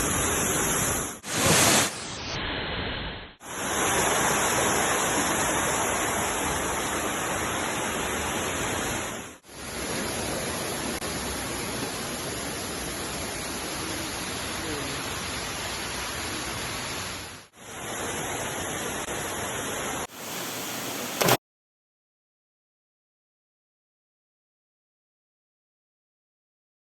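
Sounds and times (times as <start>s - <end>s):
waterfall rushing: 3.4s - 21.4s.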